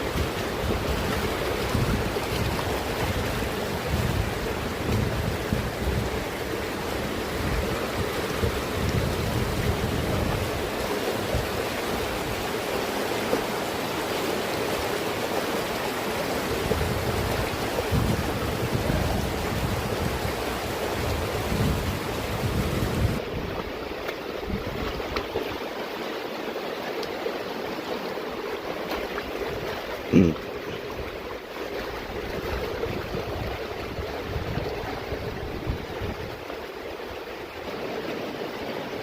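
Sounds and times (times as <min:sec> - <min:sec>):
wind buffeting microphone: 0:00.0 - 0:12.5, 0:16.4 - 0:23.8, 0:24.4 - 0:25.3, 0:31.9 - 0:36.6
mountain water rushing: 0:00.0 - 0:39.0.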